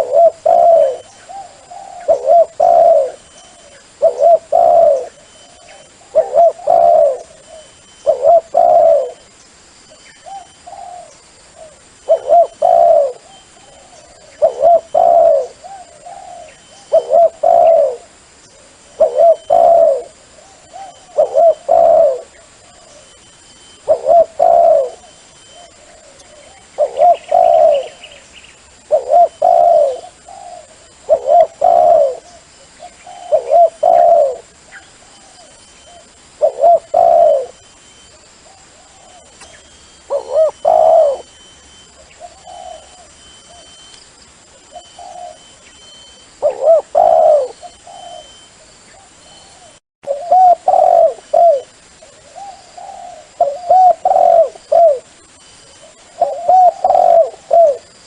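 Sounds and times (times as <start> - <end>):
dove cooing: 0.0 - 9.3, 10.2 - 58.0.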